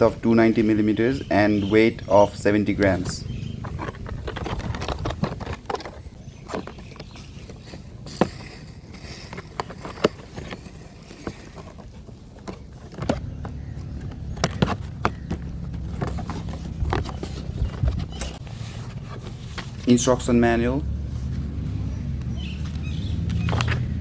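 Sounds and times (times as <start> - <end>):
packaging and plastic parts clicking: 3.6 - 20.0.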